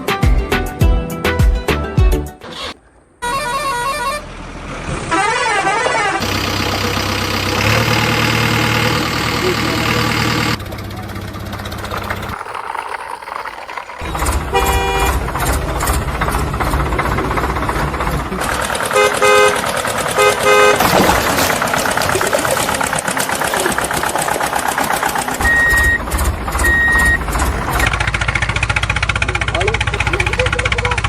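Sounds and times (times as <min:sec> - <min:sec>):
horn honking: 0:03.2 - 0:12.4, 0:14.1 - 0:16.4, 0:18.4 - 0:22.2, 0:25.2 - 0:29.1
vehicle engine running: 0:03.3 - 0:31.0.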